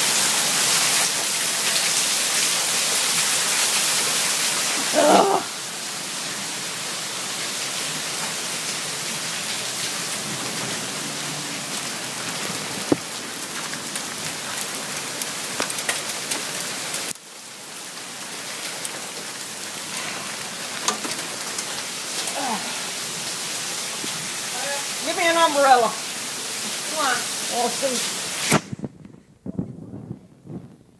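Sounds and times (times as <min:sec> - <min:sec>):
rain hissing: 0:00.0 - 0:30.8
hailstones ticking: 0:11.7 - 0:22.6.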